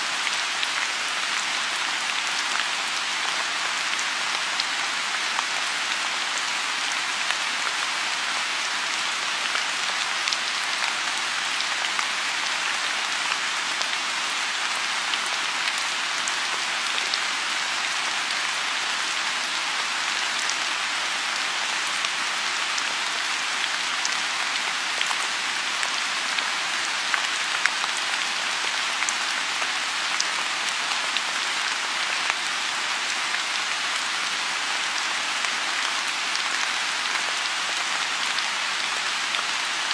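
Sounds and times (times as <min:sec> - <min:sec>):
rain hissing on pond: 0:00.0 - 0:39.9.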